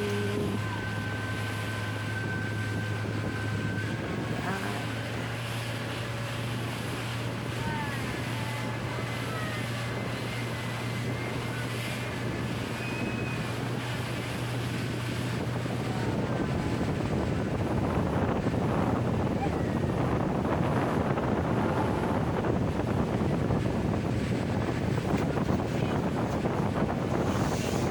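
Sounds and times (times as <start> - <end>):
motorboat engine humming: 0.0 - 27.9
water rushing past hull: 0.0 - 27.9
wind on microphone: 0.0 - 27.9.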